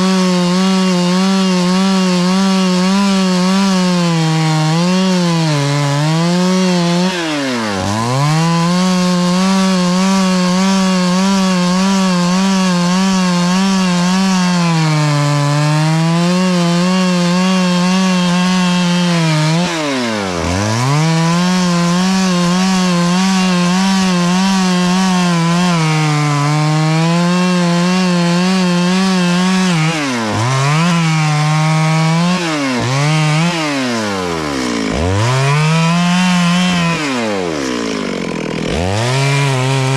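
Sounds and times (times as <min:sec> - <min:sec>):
chainsaw cutting a tree: 0:00.0 - 0:39.9.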